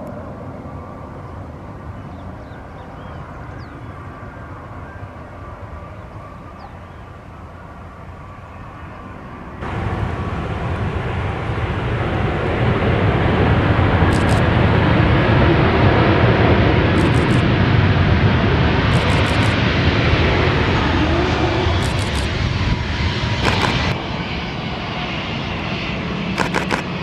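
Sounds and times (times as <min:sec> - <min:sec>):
jet engines roaring: 0:00.0 - 0:27.0
quick high clicks: 0:23.4 - 0:23.9, 0:26.4 - 0:26.9.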